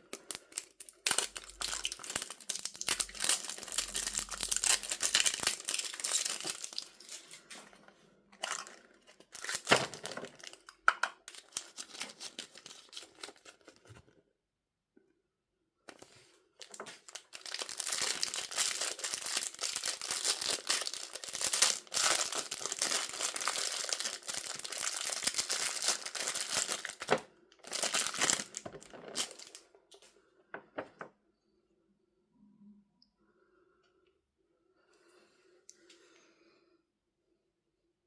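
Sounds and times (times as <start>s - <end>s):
packaging crinkling and tearing: 0.1s - 7.6s, 8.4s - 14.0s, 15.9s - 29.6s.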